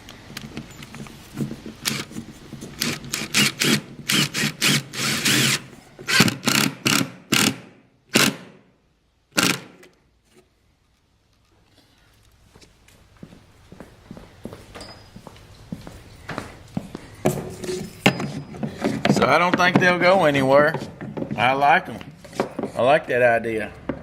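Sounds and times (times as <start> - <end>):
power drill driving screws: 1.8 - 2.2, 2.8 - 8.5, 9.4 - 9.9.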